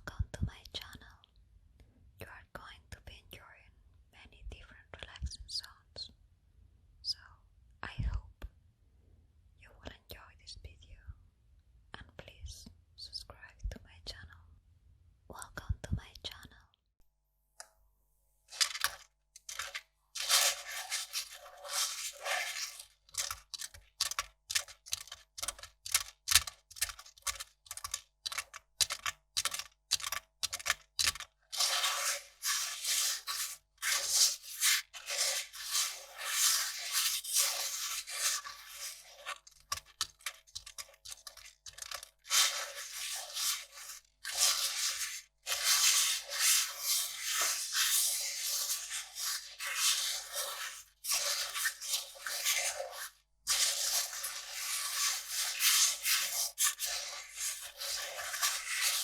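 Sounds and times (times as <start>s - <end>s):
paper crackling and rustling: 18.5s - 59.0s.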